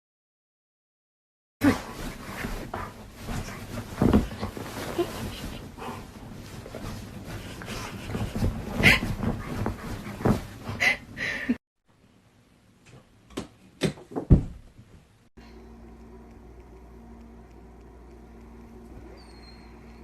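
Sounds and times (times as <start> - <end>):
low steady hum: 15.4 - 20.0.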